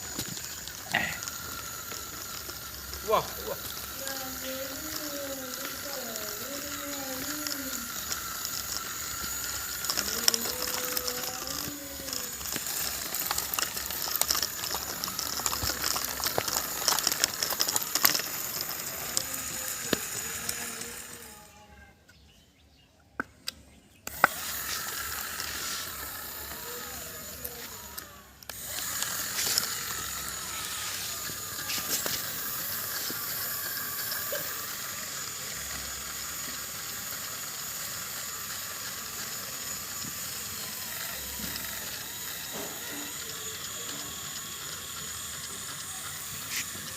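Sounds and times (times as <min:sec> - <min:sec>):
gear clicks rattling: 0:00.0 - 0:21.3, 0:23.4 - 0:46.9
electric gear motors whining: 0:00.0 - 0:46.9.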